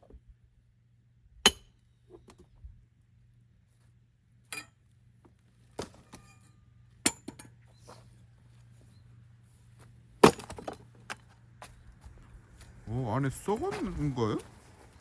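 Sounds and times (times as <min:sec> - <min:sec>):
axe splitting firewood: 0:10.2 - 0:11.2.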